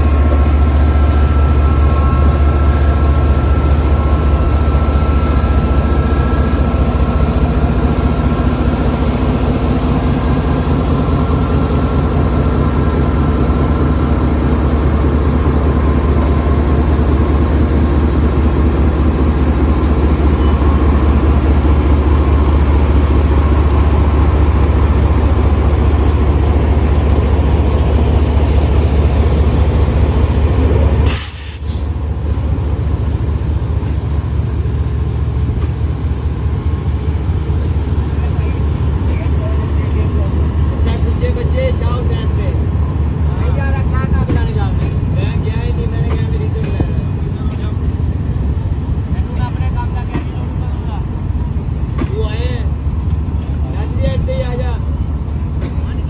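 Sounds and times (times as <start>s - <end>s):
whine: 0.0s - 21.6s
locomotive engine rumbling: 0.0s - 56.0s.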